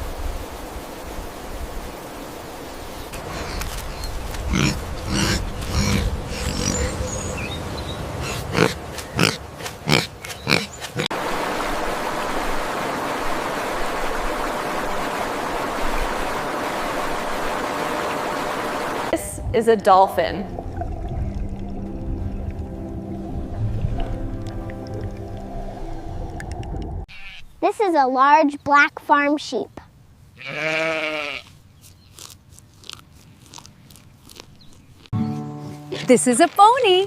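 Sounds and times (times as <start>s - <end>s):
animal grunting calls: 3.2s - 7.3s, 8.1s - 11.1s
steady rushing noise: 8.8s - 19.6s.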